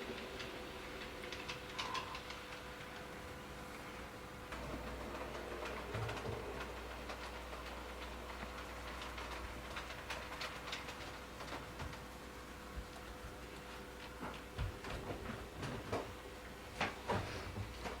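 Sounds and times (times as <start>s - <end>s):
faint clicking and ticking: 0.0s - 3.8s
train running on rails: 0.0s - 12.1s.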